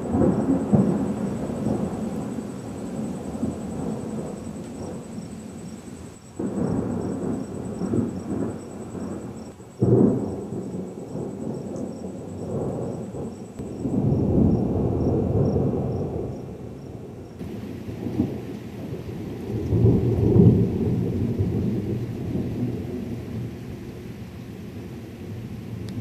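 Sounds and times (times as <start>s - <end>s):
thunder rumbling: 0.0s - 26.0s
loud thunder clap: 6.4s - 16.4s, 17.4s - 23.5s.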